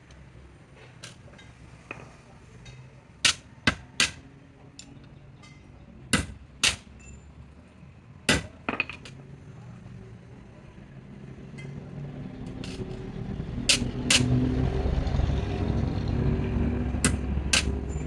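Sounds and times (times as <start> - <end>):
hammer striking metal: 5.5 - 6.9, 17.0 - 18.0.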